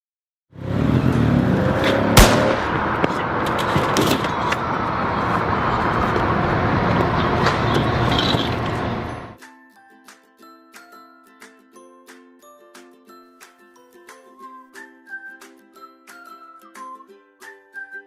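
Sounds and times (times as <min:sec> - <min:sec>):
motorcycle engine running: 0:00.6 - 0:09.4
sharp bang: 0:01.8 - 0:05.6.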